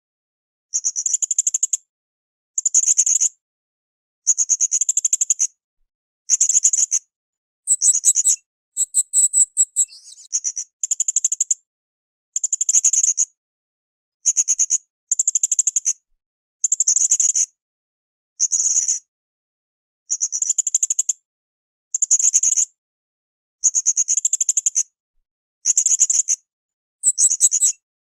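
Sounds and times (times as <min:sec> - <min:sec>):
parrot twittering trills: 0:07.7 - 0:10.3, 0:27.0 - 0:27.7.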